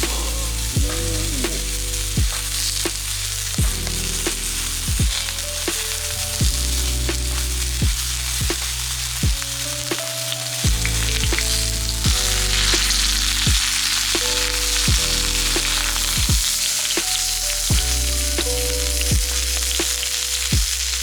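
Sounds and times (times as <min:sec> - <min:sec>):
background music: 0:00.0 - 0:21.0
food sizzling in fat: 0:00.0 - 0:21.0.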